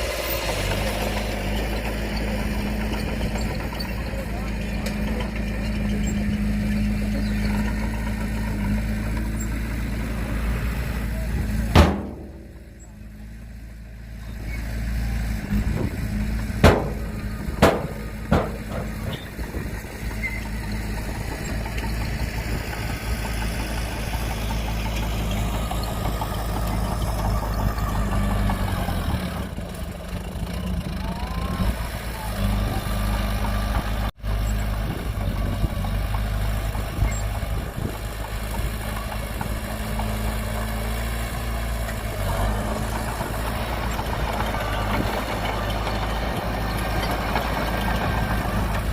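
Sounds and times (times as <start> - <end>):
heavy diesel engine running: 0.0 - 48.9
sharp knocks: 11.8 - 12.7, 16.5 - 19.5.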